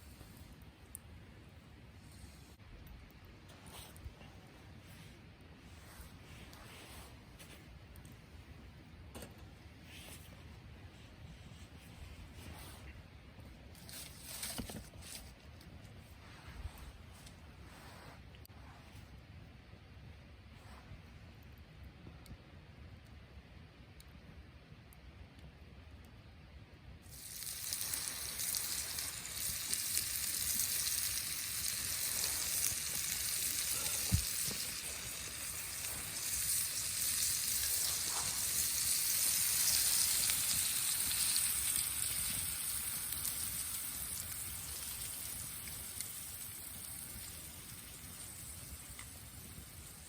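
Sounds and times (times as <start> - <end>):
food sizzling in a pan: 27.1 - 50.0.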